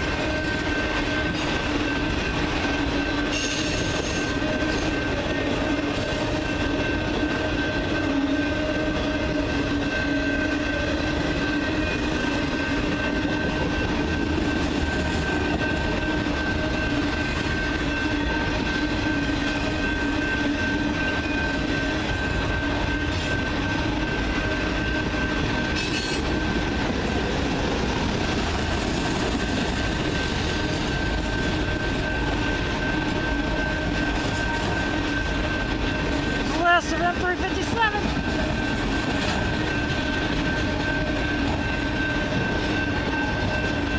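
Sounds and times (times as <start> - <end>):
train wheels rumbling: 0.0 - 43.9
high-pitched wheel squeal: 3.0 - 5.4.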